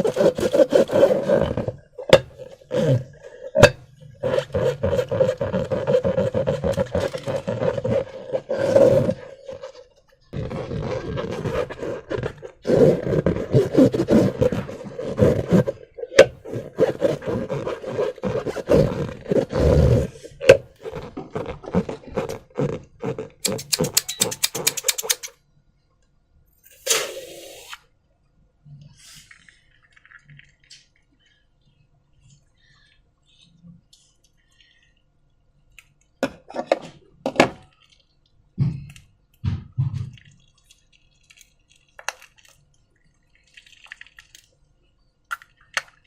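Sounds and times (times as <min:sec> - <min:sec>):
rubber balloons scraping: 0:00.0 - 0:25.2
small evenly spaced clicks: 0:23.5 - 0:25.3
slime squelching: 0:39.8 - 0:46.0.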